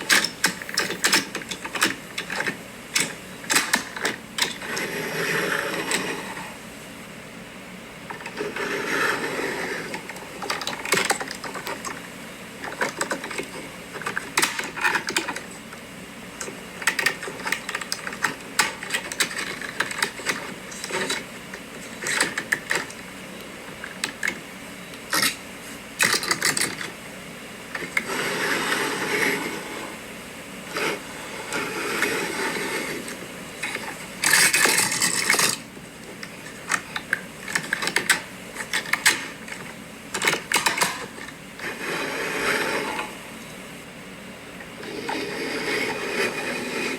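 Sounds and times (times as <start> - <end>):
toy trucks scraping: 0.4 - 1.3, 44.8 - 46.9.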